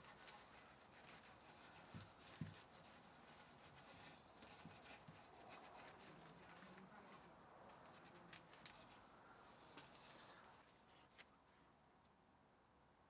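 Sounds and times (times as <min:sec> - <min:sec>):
faint rubbing of hands: 0:00.0 - 0:11.8
light clicks of handled parts: 0:03.9 - 0:11.6.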